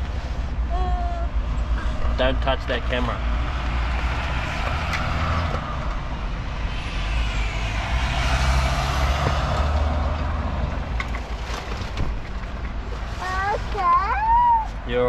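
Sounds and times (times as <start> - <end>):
heavy truck driving past: 1.3 - 12.3.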